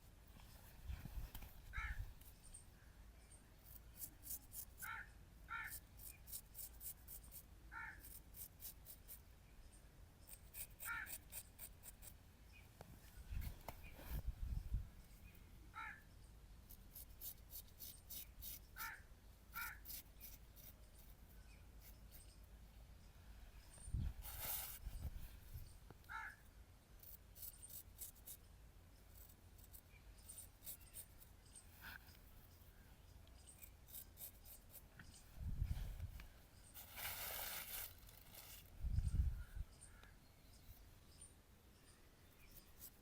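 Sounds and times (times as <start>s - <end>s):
razor scraping stubble: 3.6s - 5.0s, 5.6s - 9.2s, 10.2s - 12.2s, 16.7s - 19.0s, 19.6s - 21.2s, 24.2s - 25.2s, 27.0s - 28.5s, 29.1s - 32.3s, 33.4s - 35.2s, 36.7s - 38.7s.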